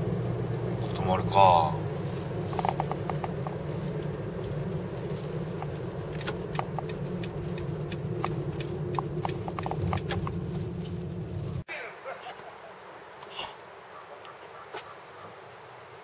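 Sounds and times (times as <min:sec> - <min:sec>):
road and engine rumble: 0:00.0 - 0:16.0
light clicks and ticks: 0:02.5 - 0:04.6, 0:05.5 - 0:11.0.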